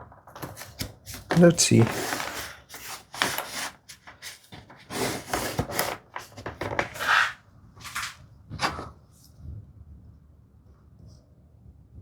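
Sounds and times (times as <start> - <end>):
wood scraping and knocking on wood: 1.2 - 2.6, 5.0 - 8.9.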